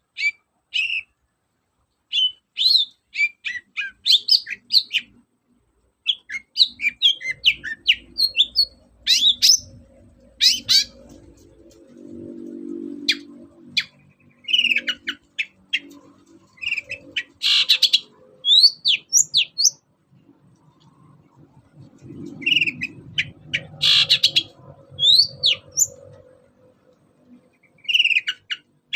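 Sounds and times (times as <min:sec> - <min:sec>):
shrike singing chirps and whistles: 0:02.1 - 0:05.1, 0:06.1 - 0:09.7, 0:10.4 - 0:11.0, 0:13.1 - 0:15.9, 0:16.6 - 0:19.8, 0:22.4 - 0:26.1, 0:27.6 - 0:28.7.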